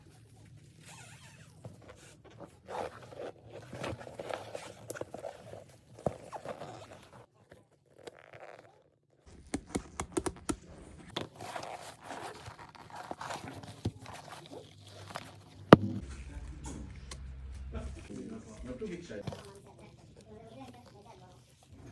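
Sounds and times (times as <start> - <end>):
handbag scraping and rustling: 0.8 - 9.5, 11.1 - 15.8.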